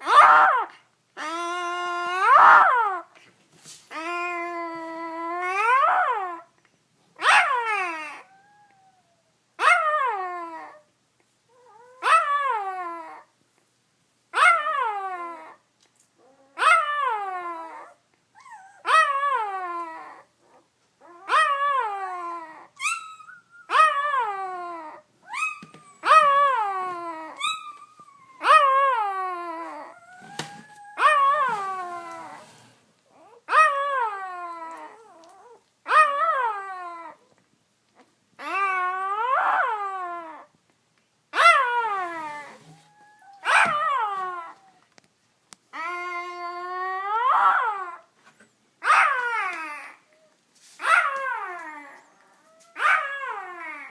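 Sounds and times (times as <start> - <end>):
puppy whining cry: 0.0 - 3.1, 3.9 - 6.5, 7.2 - 10.8, 16.2 - 37.3, 38.0 - 40.5, 41.4 - 44.9, 45.7 - 53.9
puppy squeaks: 22.8 - 23.7, 25.3 - 28.8.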